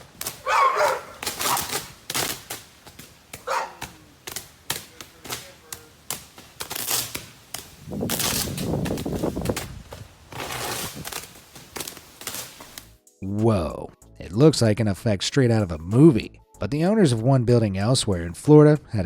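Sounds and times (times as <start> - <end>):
crackling rush: 0.0 - 13.0
power line arcing pops: 0.0 - 13.0.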